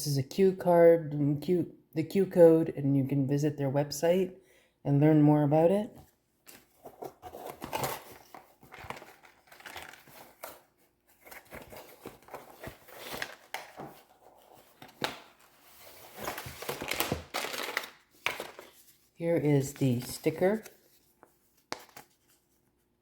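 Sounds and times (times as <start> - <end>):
packaging rustling and crinkling: 6.4 - 19.2.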